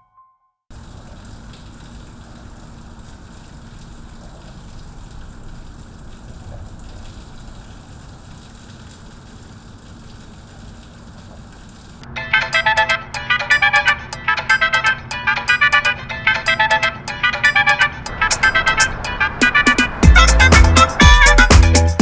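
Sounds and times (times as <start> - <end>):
rushing water: 0.7 - 12.0, 17.3 - 22.0.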